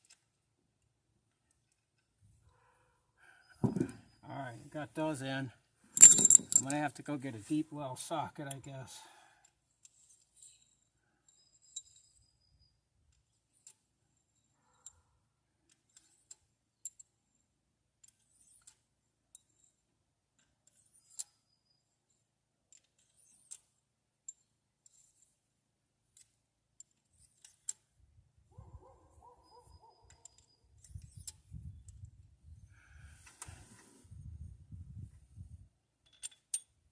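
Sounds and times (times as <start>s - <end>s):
metallic clinks of hand tools: 6.0s - 6.8s, 36.0s - 36.7s.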